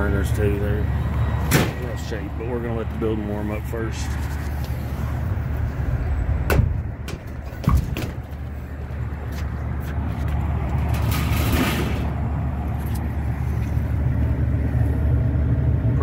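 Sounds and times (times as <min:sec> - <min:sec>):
rooftop unit humming: 0:00.0 - 0:16.0
sharp clicks and knocks: 0:06.5 - 0:08.6.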